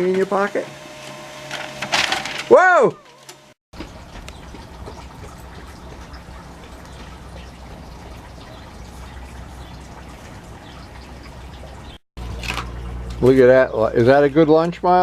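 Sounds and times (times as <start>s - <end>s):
low steady hum: 0.0s - 15.0s
trickling running water: 3.7s - 13.8s.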